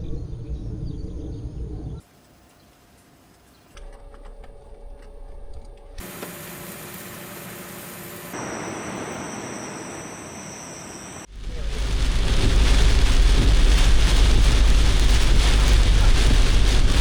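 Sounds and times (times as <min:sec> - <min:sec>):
steady rain hiss: 0:06.0 - 0:17.0
heavy downpour with low rumble: 0:11.3 - 0:17.0.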